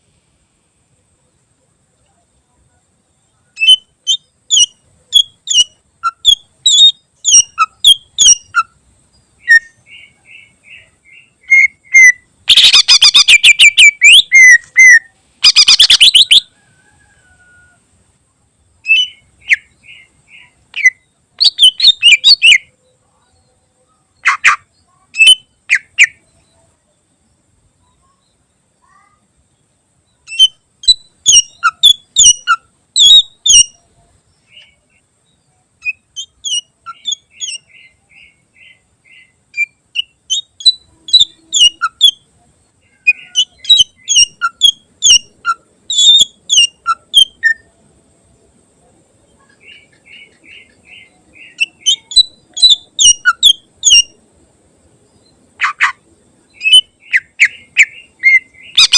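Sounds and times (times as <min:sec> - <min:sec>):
bird singing sharp rapid notes: 0:09.4 - 0:16.4, 0:56.6 - 0:58.9.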